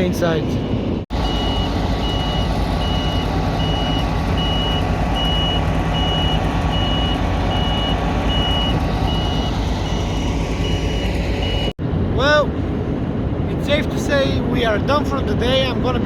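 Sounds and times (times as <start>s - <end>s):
loud low machinery rumble: 0.0s - 16.0s
electronic warning beeps: 1.2s - 11.7s.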